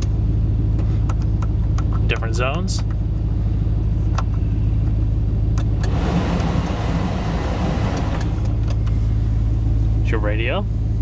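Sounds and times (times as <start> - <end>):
engine idling: 0.0 - 11.0
blower fan rushing air: 3.2 - 11.0.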